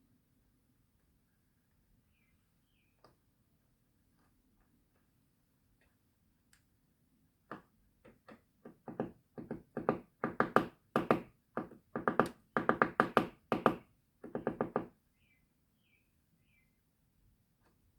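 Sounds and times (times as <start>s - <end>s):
woodpecker hammering on wood: 8.6s - 14.9s.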